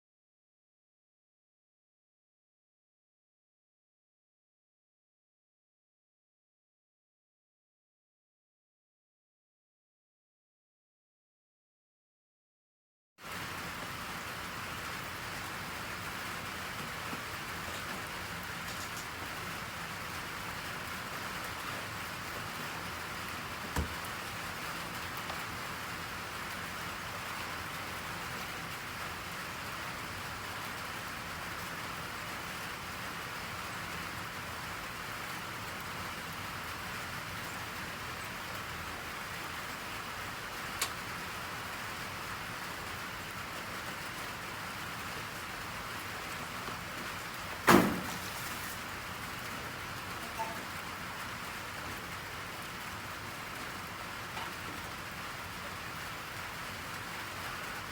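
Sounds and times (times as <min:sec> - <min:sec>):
steady rain falling: 0:13.2 - 0:57.9.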